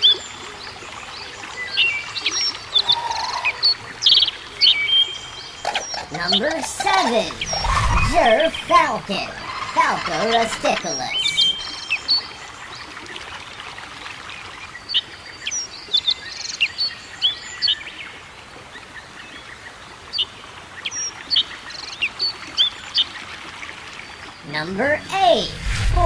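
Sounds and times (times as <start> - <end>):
small birds chirping: 1.7 - 12.3.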